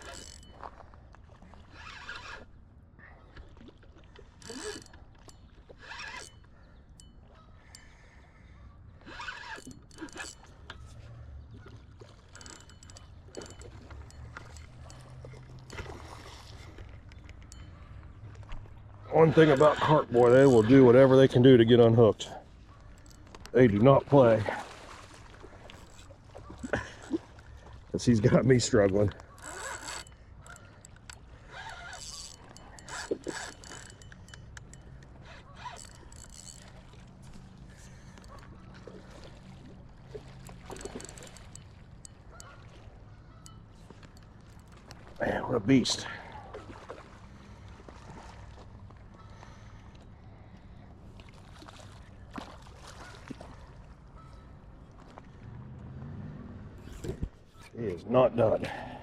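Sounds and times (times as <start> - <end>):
fishing reel clicking: 0.0 - 0.6, 1.7 - 2.5, 4.4 - 7.1, 9.0 - 11.0, 12.2 - 15.8, 23.0 - 23.5, 29.2 - 38.5, 40.4 - 42.6
low rumble of water: 0.0 - 59.0.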